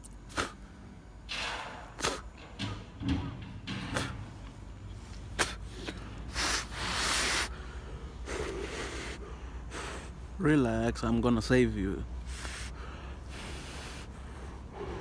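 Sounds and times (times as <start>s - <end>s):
steady low rumble: 0.0s - 15.0s
person breathing out hard: 5.4s - 10.3s, 12.3s - 15.0s.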